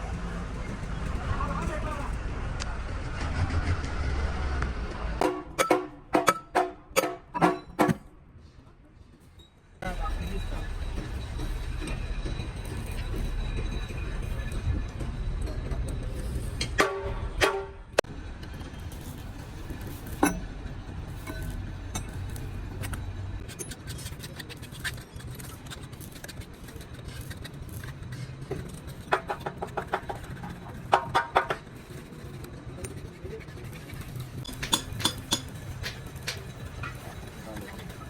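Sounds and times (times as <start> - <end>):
ringing metallic taps: 5.2 - 8.0
sharp knocks: 5.2 - 8.1.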